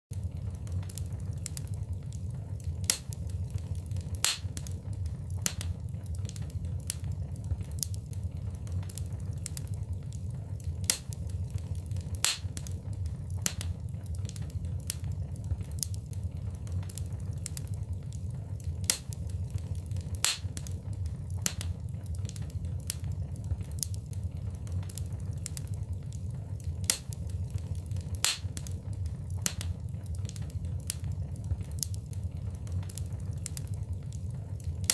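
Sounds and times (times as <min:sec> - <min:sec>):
low rumble of flames: 0:00.1 - 0:34.9
wood fire crackling: 0:00.1 - 0:34.9
sharp pops: 0:28.2 - 0:28.5.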